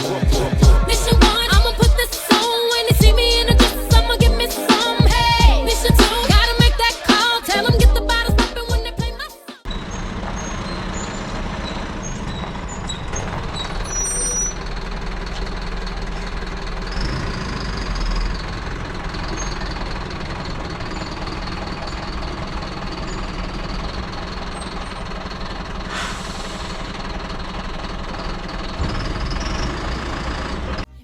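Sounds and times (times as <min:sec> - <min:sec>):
truck diesel engine running: 0:00.0 - 0:30.9
short hiss: 0:25.9 - 0:26.8.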